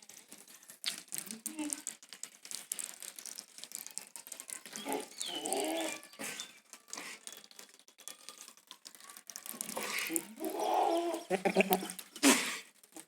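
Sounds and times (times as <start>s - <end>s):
scattered clicks: 0.0s - 12.2s
goat bleating: 10.4s - 12.0s.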